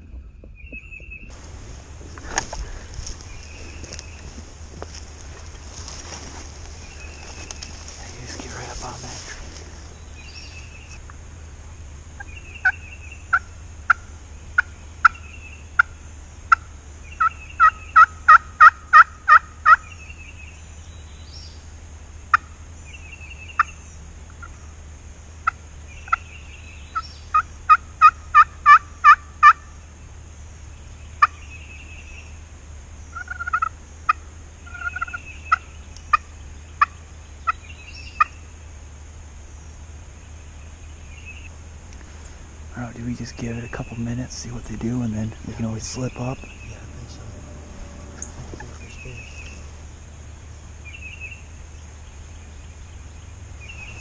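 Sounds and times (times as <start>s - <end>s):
faint bird chirps: 0.6s - 11.0s, 40.8s - 54.0s.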